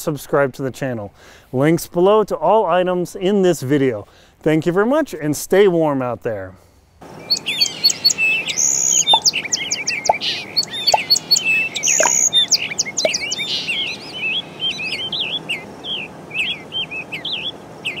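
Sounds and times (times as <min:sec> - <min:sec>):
birds chirping and singing: 0:07.1 - 0:18.0.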